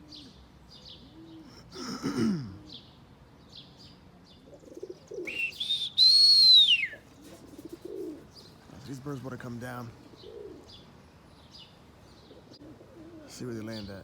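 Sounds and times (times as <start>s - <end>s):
pigeons cooing: 0.0s - 3.0s, 4.4s - 8.8s, 9.8s - 11.0s, 12.2s - 14.0s
small birds chirping: 0.0s - 14.0s
person whistling: 5.3s - 7.0s.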